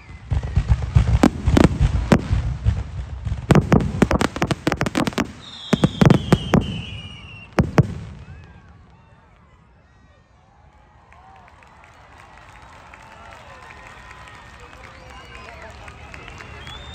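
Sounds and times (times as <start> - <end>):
long falling whistle: 0.0 - 1.0, 5.4 - 7.6, 12.6 - 16.9
fireworks bursting with sharp bangs: 0.0 - 9.6.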